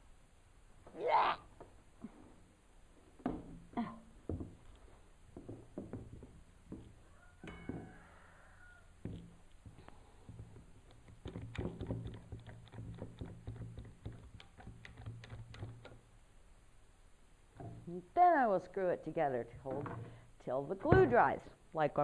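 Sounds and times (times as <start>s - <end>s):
wood knocking: 3.2s - 3.7s, 4.3s - 8.2s, 9.0s - 16.0s, 17.5s - 18.0s, 20.9s - 21.3s.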